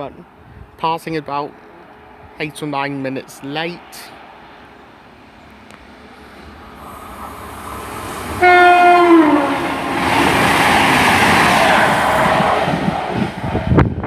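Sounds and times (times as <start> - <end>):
train rushing past: 1.9 - 14.0
train two-tone horn: 8.4 - 10.1.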